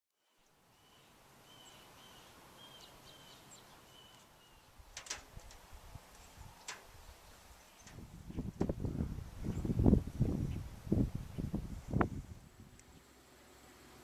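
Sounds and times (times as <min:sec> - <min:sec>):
bird chirping: 0:00.2 - 0:04.8.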